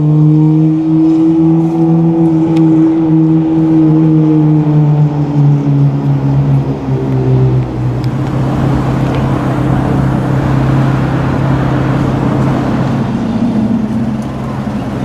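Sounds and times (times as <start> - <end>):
sports car engine running: 6.0 - 15.0
rushing noise: 6.2 - 15.0.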